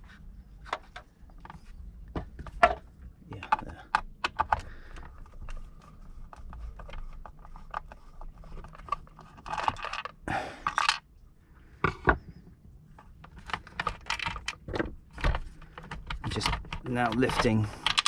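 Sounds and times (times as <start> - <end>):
hands handling plastic pump: 0.0 - 11.0, 11.8 - 18.0.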